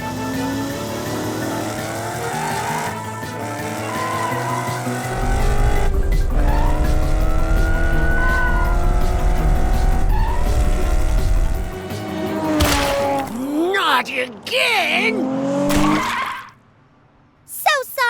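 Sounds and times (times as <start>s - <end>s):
background music: 0.0s - 15.4s
cartoon race car engine: 0.0s - 16.6s
tyre squeals: 3.6s - 5.3s, 6.4s - 11.3s
deep rumble: 5.2s - 11.8s.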